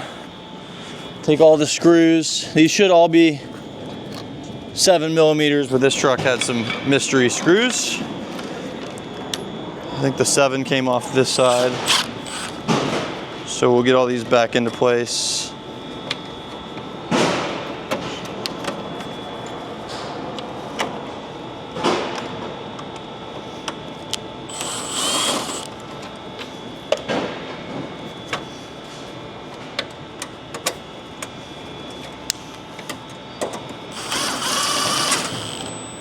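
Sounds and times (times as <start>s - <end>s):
power tool bursts: 11.3s - 12.7s, 24.5s - 25.7s, 33.9s - 35.9s.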